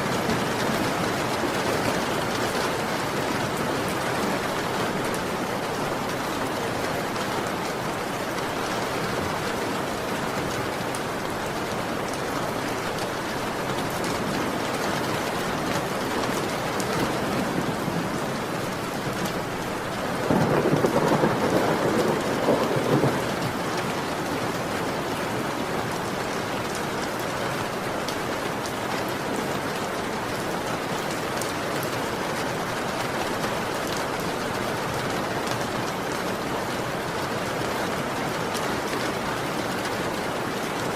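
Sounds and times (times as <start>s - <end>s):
heavy rain falling: 0.0s - 40.9s
thunder rumble: 20.0s - 23.7s.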